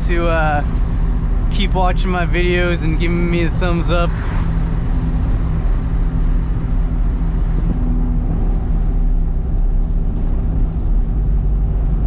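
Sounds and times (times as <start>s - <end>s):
truck engine and road drone: 0.0s - 12.0s.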